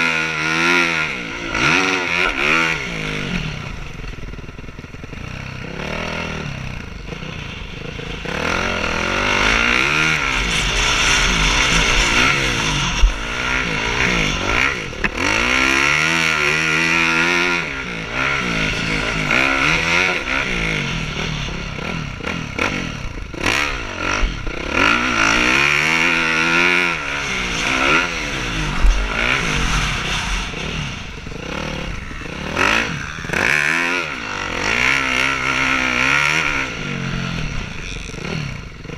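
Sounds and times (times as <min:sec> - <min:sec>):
motocross bike engines revving: 0:00.0 - 0:38.9.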